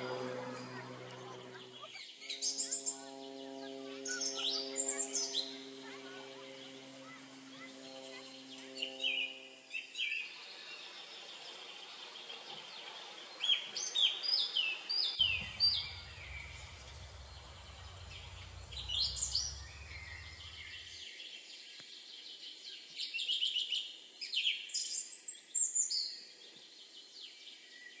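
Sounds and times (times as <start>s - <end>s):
low rumble: 0.0s - 8.9s, 15.2s - 21.0s.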